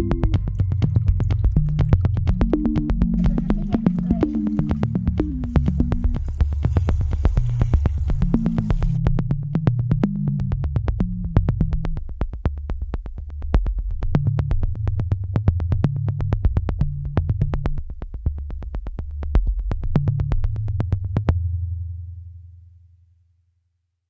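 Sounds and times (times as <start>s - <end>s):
synthesizer bass line: 0.0s - 9.0s.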